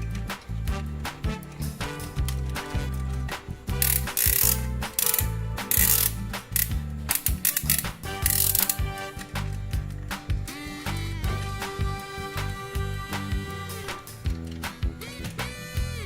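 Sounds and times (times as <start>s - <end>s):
background music with bass line: 0.0s - 16.0s
mechanical ratcheting clatter: 1.5s - 9.0s.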